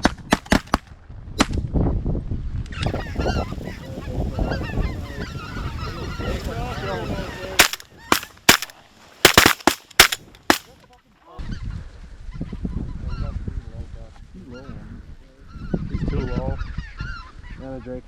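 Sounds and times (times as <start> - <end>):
shotgun blasts: 0.0 - 0.8, 7.6 - 10.8
wind: 0.0 - 18.0
geese honking: 2.8 - 8.7.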